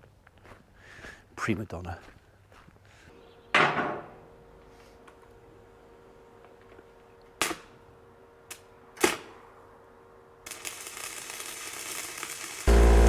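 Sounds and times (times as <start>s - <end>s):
building hiss: 10.5s - 13.0s
engine starting and running: 12.7s - 13.0s.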